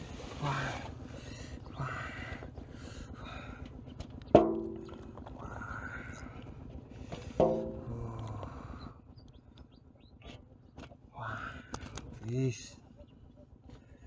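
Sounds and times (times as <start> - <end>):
sharp ringing knocks: 4.3 - 5.1, 7.3 - 7.9.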